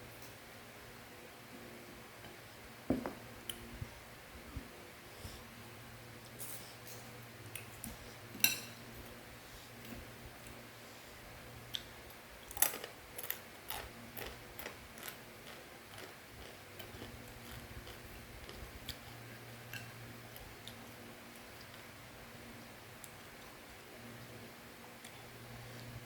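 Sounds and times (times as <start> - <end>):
crunchy snack being chewed: 12.5 - 19.2.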